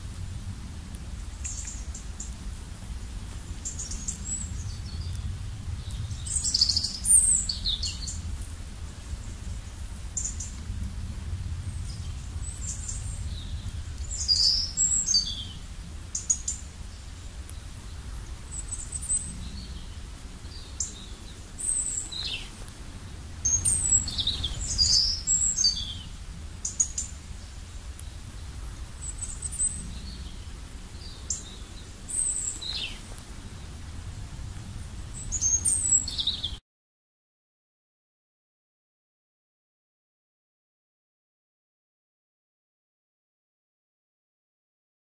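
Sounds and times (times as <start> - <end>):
low steady rumble: 0.0 - 36.6
birds chirping and calling: 11.9 - 16.6, 23.5 - 30.4, 31.0 - 33.2, 35.2 - 36.5.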